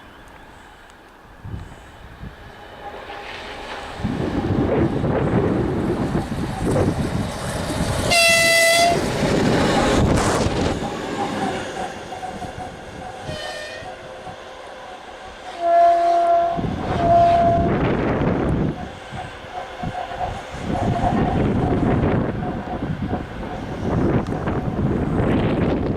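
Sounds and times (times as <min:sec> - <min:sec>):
diesel locomotive rumbling past: 0:00.0 - 0:25.9
locomotive horn blasts: 0:08.1 - 0:09.1, 0:13.2 - 0:13.9, 0:15.5 - 0:17.8.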